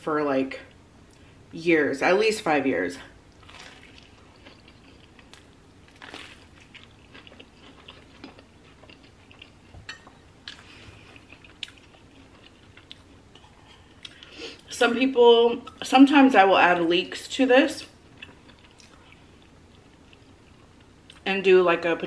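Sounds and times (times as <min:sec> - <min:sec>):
person chewing crackly sandwich: 0:03.3 - 0:09.8, 0:10.4 - 0:14.4, 0:18.1 - 0:21.2.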